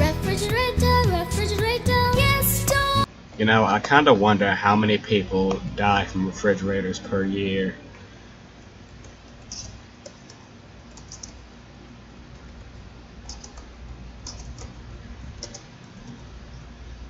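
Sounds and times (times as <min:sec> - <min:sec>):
keyboard typing: 0:09.0 - 0:11.4, 0:13.2 - 0:14.8, 0:15.4 - 0:16.3.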